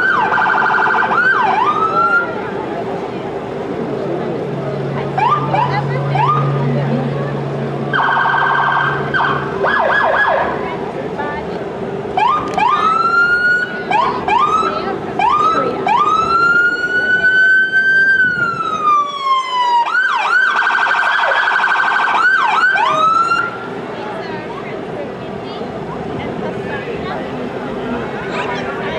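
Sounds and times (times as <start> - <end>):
emergency vehicle siren: 0.0 - 2.6, 5.0 - 7.3, 7.9 - 10.6, 12.2 - 23.8.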